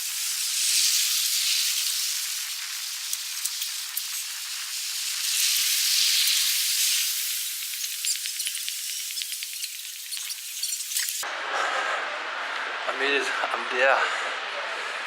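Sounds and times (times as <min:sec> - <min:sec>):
heavy rain hissing: 0:00.0 - 0:11.2.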